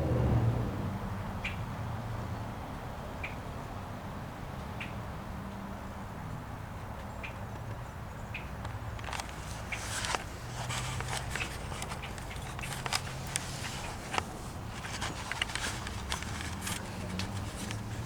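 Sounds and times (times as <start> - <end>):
bird clicks and chips: 8.4 - 18.0.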